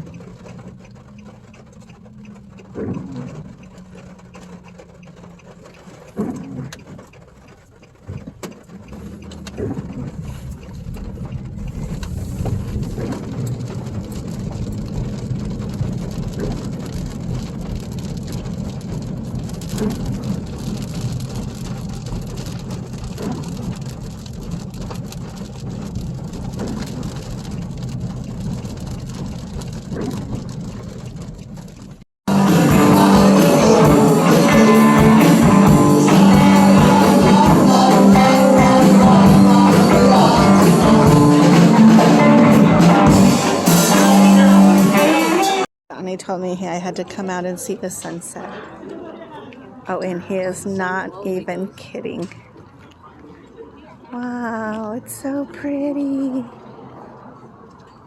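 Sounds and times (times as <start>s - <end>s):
car engine idling: 0.0s - 45.7s
rain on car: 0.0s - 45.7s, 54.2s - 57.8s
road rumble: 0.0s - 58.0s.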